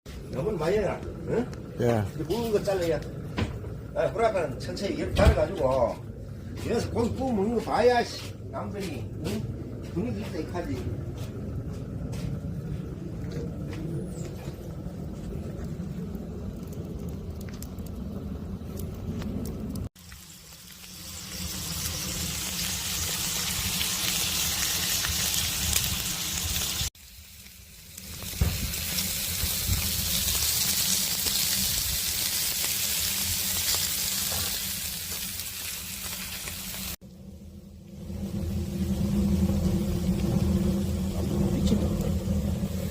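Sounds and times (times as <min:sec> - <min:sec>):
low rumble: 0:00.1 - 0:42.9
meat sizzling and spitting: 0:19.8 - 0:37.0.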